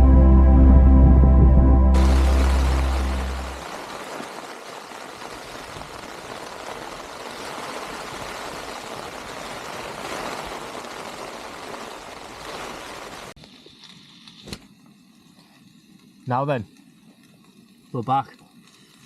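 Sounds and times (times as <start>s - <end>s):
steady rushing noise: 0.0s - 4.1s.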